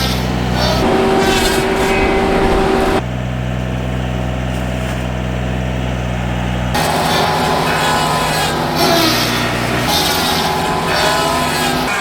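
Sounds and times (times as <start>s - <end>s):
engine running: 0.0s - 12.0s
circular saw whine: 0.4s - 3.0s, 6.8s - 12.0s.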